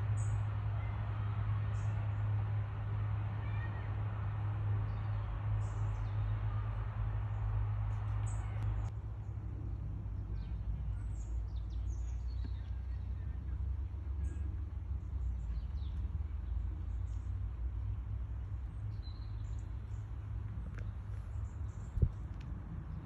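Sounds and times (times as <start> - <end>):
steady low rumble: 0.0 - 23.0
small birds chirping: 9.7 - 23.0.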